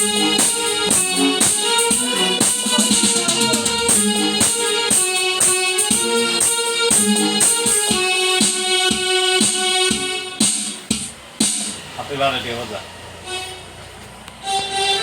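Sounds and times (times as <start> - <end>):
keyboard playing a melody: 0.0 - 11.7, 14.4 - 15.0
keyboard rhythm accompaniment: 0.0 - 12.0.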